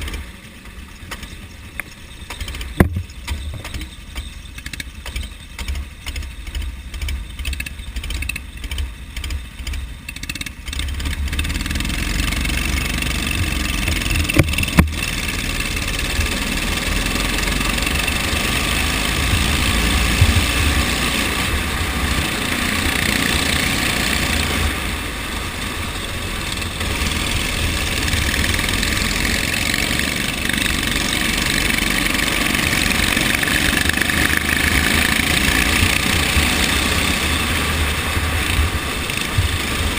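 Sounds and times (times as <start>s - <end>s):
go-kart engines racing: 0.0s - 39.9s
sharp knocks: 2.3s - 3.9s, 13.4s - 15.0s.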